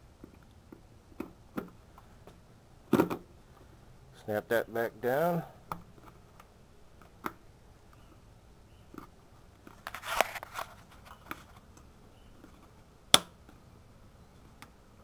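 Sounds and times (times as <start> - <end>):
scraping rustle: 9.6 - 11.7.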